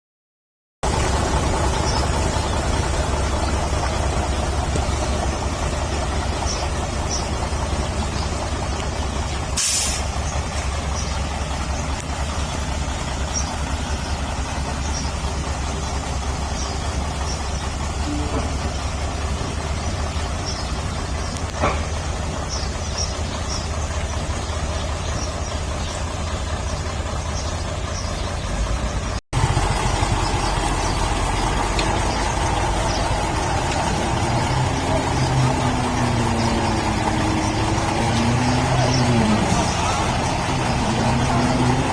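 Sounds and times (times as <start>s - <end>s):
diesel machinery rumbling: 0.8s - 41.9s
air hiss: 9.6s - 10.2s.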